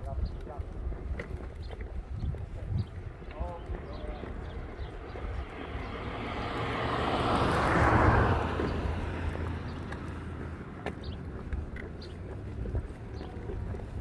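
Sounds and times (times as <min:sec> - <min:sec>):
vehicle passing by: 0:03.5 - 0:14.0.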